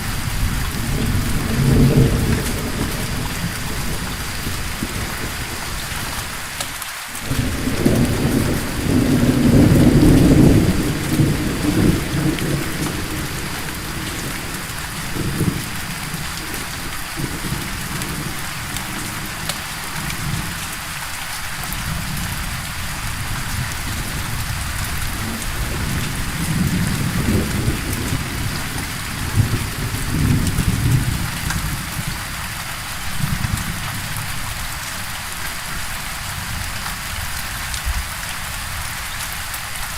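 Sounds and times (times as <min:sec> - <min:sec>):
rolling thunder: 0:00.0 - 0:06.5, 0:07.2 - 0:20.6, 0:21.8 - 0:32.2
steady rain: 0:00.0 - 0:39.9.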